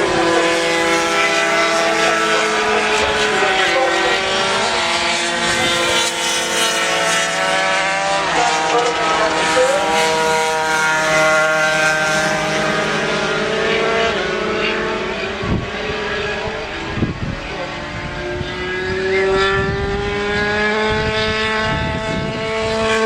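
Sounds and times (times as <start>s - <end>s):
racing motorcycle engines revving: 0.0s - 23.0s.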